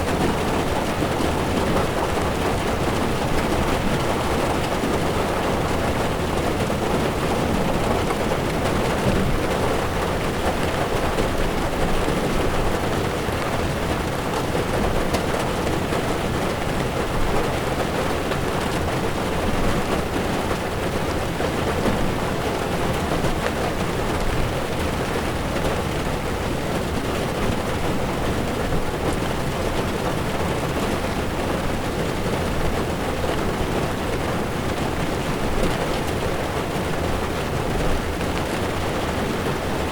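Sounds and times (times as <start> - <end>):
heavy rain on windshield: 0.0 - 39.9
tyres on wet road: 0.0 - 39.9.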